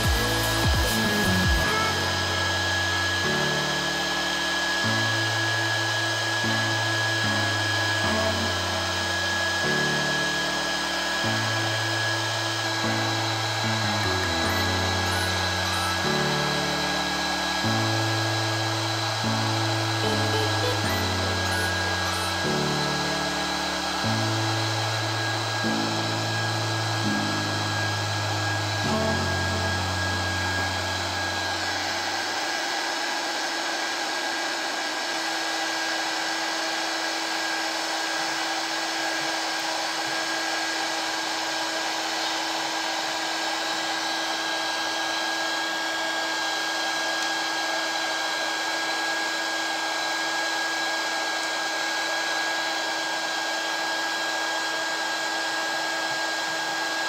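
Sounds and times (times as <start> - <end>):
hot air gun blowing: 0.0 - 57.0.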